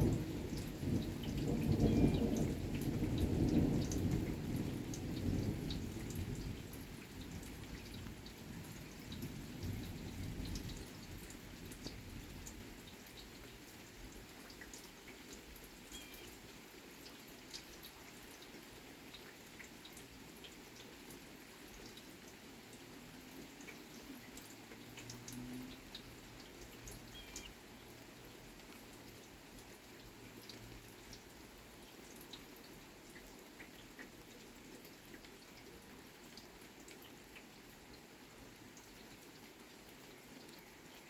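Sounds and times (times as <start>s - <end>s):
distant thunder rumble: 0.0s - 6.8s
rain drops ticking: 0.0s - 41.0s
soft hiss of rainfall: 0.0s - 41.0s
bird chirping: 27.1s - 27.5s.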